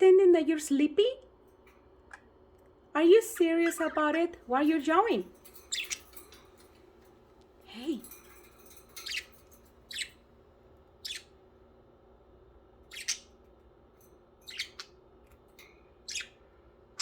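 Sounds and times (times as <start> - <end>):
budgerigar chirping: 11.0 - 11.3, 12.9 - 13.4, 14.5 - 14.9, 16.0 - 16.4.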